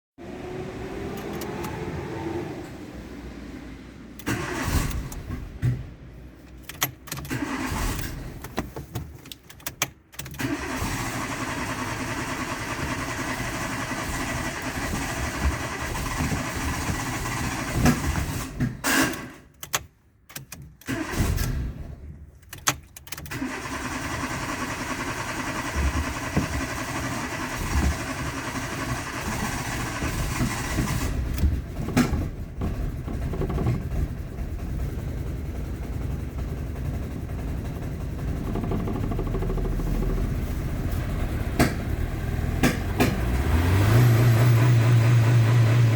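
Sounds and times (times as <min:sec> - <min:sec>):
car engine starting and idling: 0:00.2 - 0:45.9.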